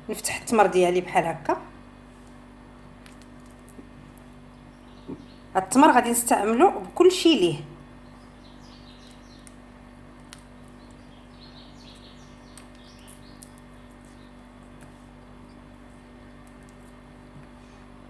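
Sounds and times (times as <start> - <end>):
low electrical hum: 0.0 - 18.0
bird chirps: 8.0 - 9.5, 10.8 - 14.4.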